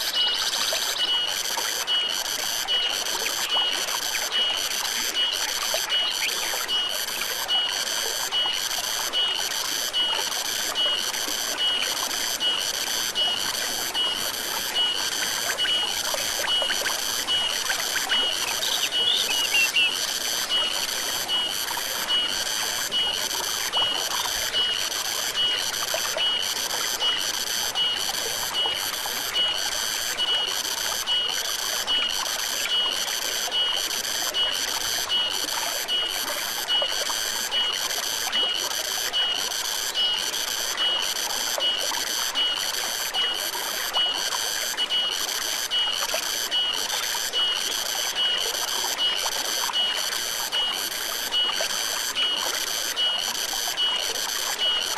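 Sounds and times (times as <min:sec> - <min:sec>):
forest stream running: 0:00.0 - 0:54.9
rhythmic high chirping: 0:12.7 - 0:27.0.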